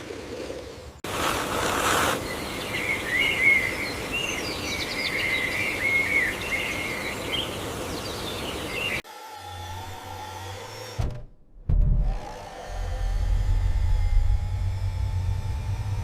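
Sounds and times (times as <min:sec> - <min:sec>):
outdoor ambient hiss: 0:00.0 - 0:09.0
small birds chirping: 0:01.7 - 0:09.0.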